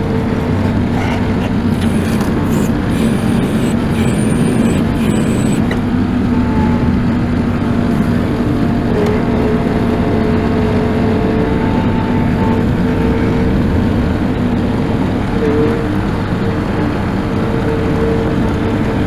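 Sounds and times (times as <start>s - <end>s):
tractor engine running: 0.0s - 15.4s
faint high whine: 1.7s - 6.6s.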